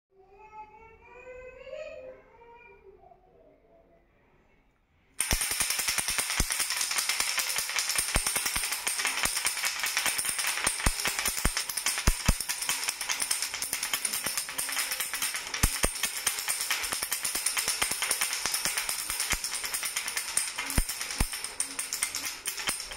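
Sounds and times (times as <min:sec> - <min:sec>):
toy rattle shaken: 0:05.2 - 0:22.9.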